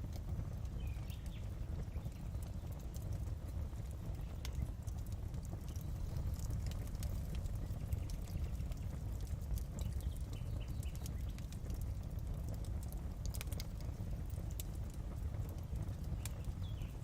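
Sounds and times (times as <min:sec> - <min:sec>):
fire crackling in a fireplace: 0:00.0 - 0:17.0.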